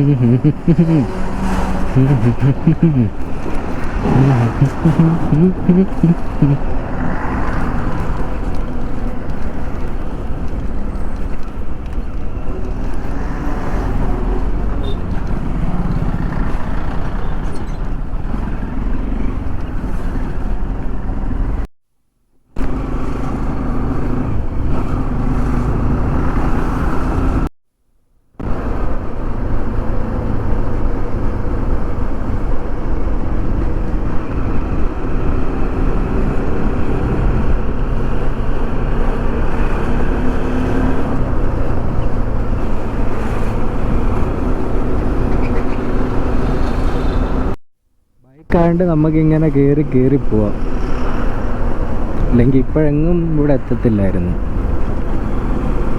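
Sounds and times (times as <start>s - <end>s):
motorcycle engine: 0.0s - 19.6s
road noise: 0.0s - 21.7s, 22.5s - 27.5s, 28.4s - 47.6s, 48.2s - 55.9s.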